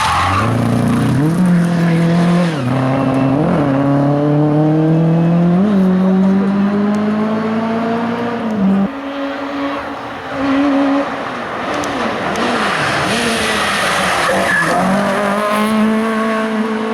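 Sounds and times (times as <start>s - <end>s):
race car engine accelerating: 0.1s - 16.9s
tyre squeal: 12.6s - 15.2s.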